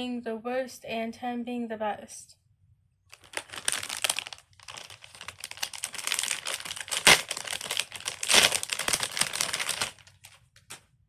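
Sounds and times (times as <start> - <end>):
plastic fidget toys crinkling: 3.1 - 10.8
sharp loud crackle: 5.5 - 9.9.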